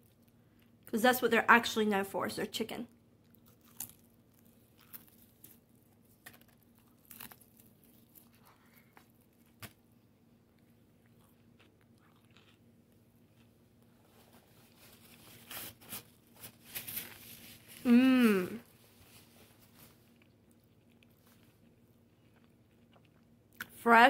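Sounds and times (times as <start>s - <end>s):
chewing crispy fried chicken: 3.1s - 9.7s, 10.6s - 15.1s, 19.6s - 23.8s.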